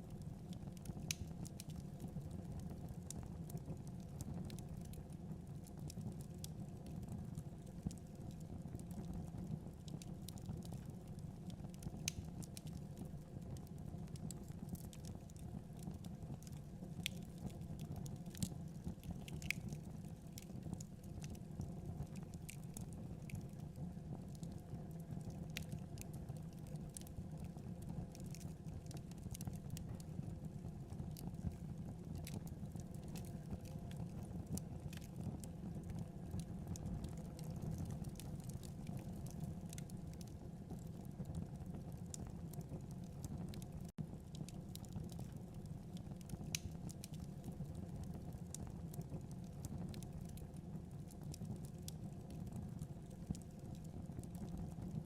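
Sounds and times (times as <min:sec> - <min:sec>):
flames burning: 0:00.0 - 0:55.0
logs crackling and popping: 0:00.7 - 0:05.1, 0:11.7 - 0:23.6, 0:27.8 - 0:30.0, 0:31.1 - 0:55.0.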